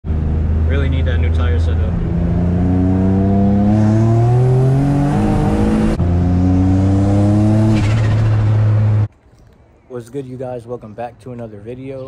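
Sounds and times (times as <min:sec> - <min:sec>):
car engine accelerating hard: 0:00.1 - 0:09.1.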